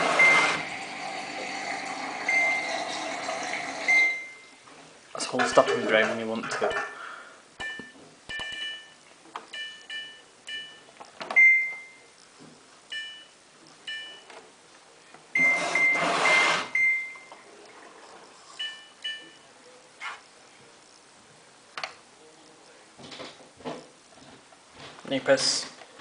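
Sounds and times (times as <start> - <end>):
washing machine control panel beeps: 0.1 - 0.6, 2.2 - 2.7, 3.8 - 4.4, 7.6 - 12.1, 12.9 - 13.3, 13.9 - 14.3, 15.4 - 17.4, 18.6 - 19.4.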